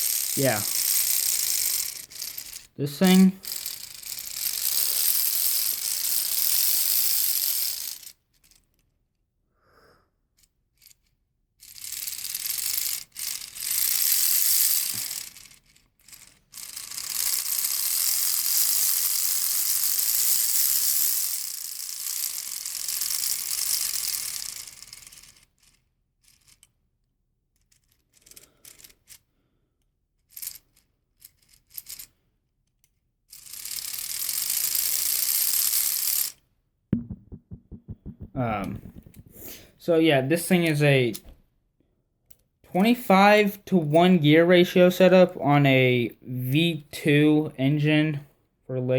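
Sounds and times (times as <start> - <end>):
plastic gears clicking rattle: 0.0 - 9.2, 10.4 - 36.4.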